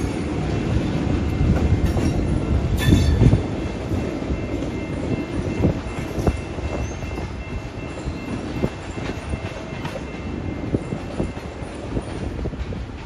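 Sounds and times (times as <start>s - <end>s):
knocks and clanks of rail cars: 0.0s - 13.0s
train wheels rumbling on track: 0.0s - 13.0s.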